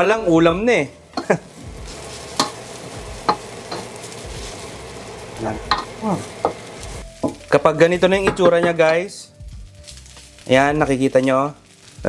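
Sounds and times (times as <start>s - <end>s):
rice sizzling in a wok: 0.0s - 12.0s
wooden spoon scraping a wok: 1.2s - 7.5s, 9.7s - 12.0s
spoon knocking against a pan: 3.2s - 3.9s, 5.7s - 6.6s, 8.2s - 8.8s.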